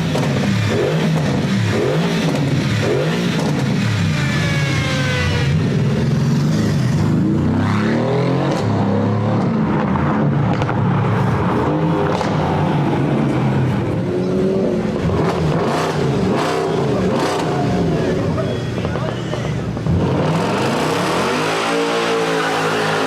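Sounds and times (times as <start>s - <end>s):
sports car engines revving: 0.0s - 23.0s.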